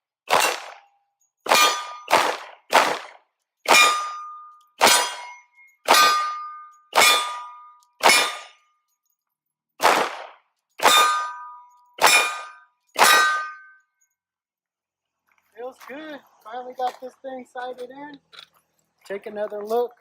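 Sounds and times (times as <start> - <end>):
pistol shots: 0.3 - 0.9, 1.5 - 8.6, 9.8 - 13.6
steel targets ringing: 1.5 - 2.4, 3.6 - 8.6, 10.8 - 13.9.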